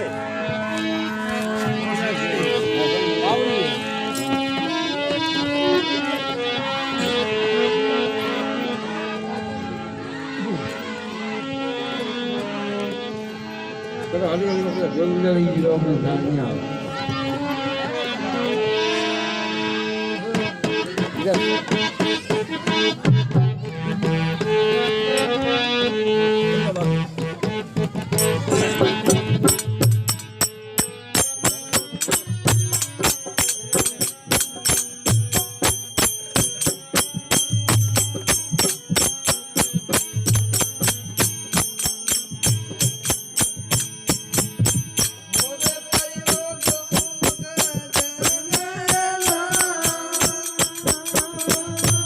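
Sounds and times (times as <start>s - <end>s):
sustained folk melody: 0.0s - 52.0s
hand-drum beats: 20.3s - 25.7s, 26.6s - 52.0s
jingling bells: 27.7s - 52.0s
bright clicking percussion: 28.0s - 52.0s.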